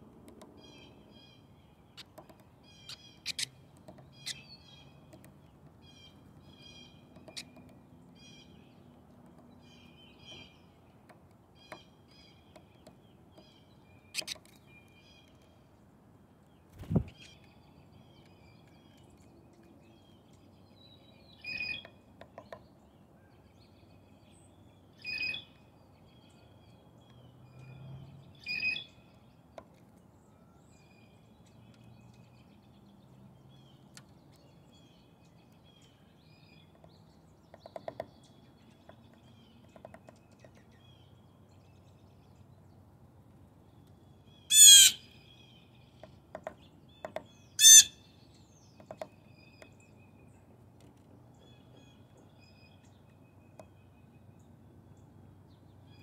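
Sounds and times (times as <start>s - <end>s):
woodpecker pecking: 0.1s - 0.8s, 2.0s - 14.6s, 36.6s - 40.8s
bird calls: 0.5s - 15.6s, 44.3s - 50.5s.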